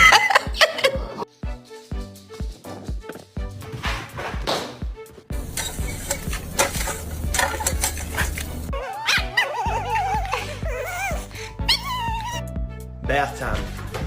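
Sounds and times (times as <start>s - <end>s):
background music with low beat: 0.0s - 14.0s
dog whining: 7.4s - 12.5s.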